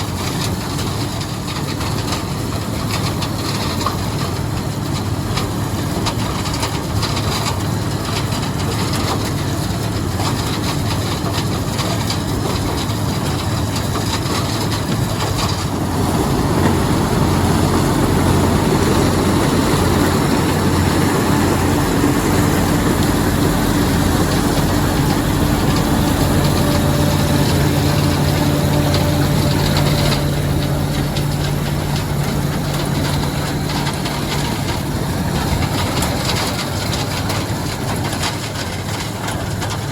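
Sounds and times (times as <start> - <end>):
combine harvester running: 0.0 - 39.9
steady low hum: 15.6 - 36.5.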